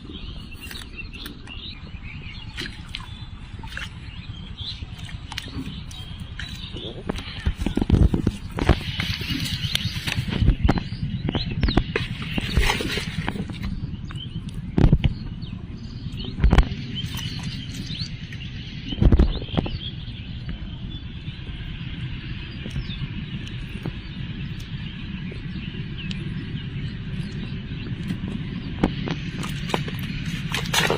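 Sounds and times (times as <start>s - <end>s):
steady low rumble: 0.0s - 30.9s.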